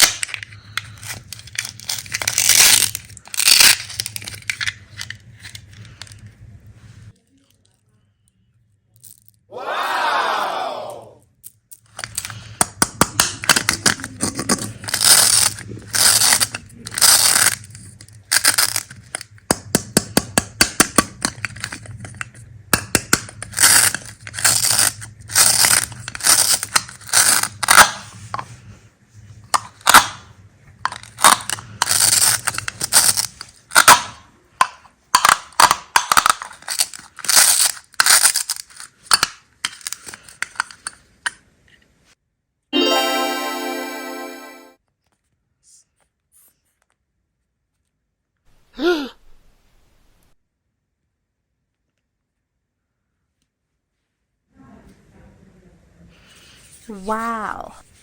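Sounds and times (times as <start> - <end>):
hard candies crunching: 0.0 - 6.3, 11.8 - 28.0, 30.8 - 34.2, 35.1 - 41.0.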